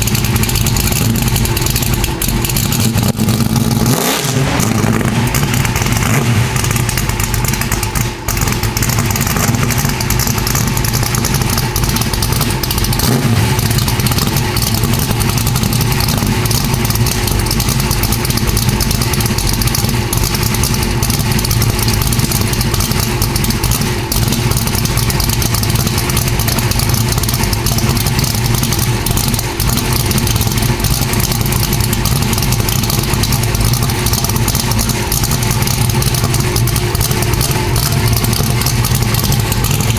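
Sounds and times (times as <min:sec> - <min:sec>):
engine running through exhaust: 0:00.0 - 0:39.9.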